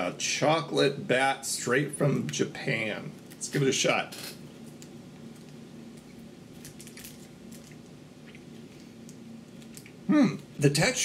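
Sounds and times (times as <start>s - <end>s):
faint low hum: 0.0s - 11.0s
person chewing snack: 4.6s - 10.5s.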